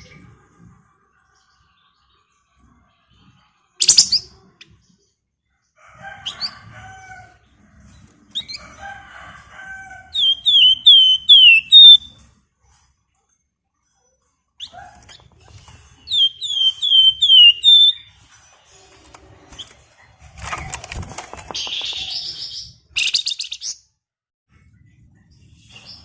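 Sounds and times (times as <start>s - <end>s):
bird singing: 10.2s - 12.1s, 16.0s - 18.2s, 21.4s - 23.7s.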